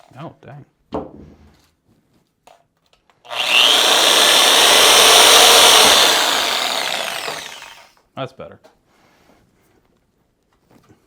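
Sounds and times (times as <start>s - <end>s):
power tool cutting frozen food: 3.3s - 7.9s.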